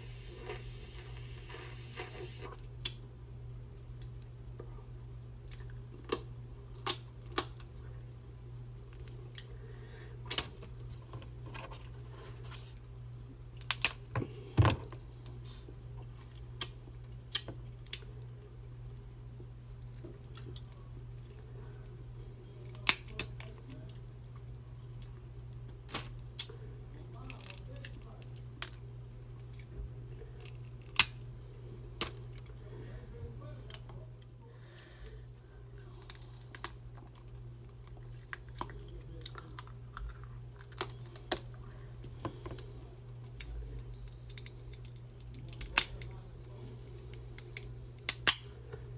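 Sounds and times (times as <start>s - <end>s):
steady low hum: 0.0s - 48.9s
crab shell cracking: 6.0s - 7.6s, 30.3s - 31.2s, 36.0s - 41.6s, 42.5s - 46.2s, 46.8s - 48.6s.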